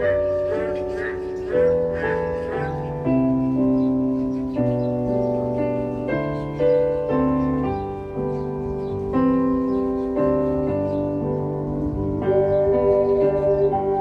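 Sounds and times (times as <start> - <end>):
ocarina duet melody: 0.0 - 14.0
low bass line: 10.8 - 14.0.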